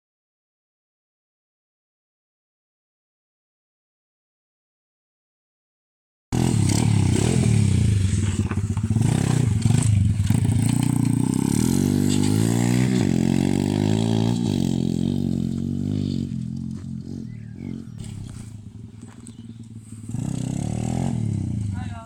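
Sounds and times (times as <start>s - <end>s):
small motorcycle engine running: 6.4s - 22.0s.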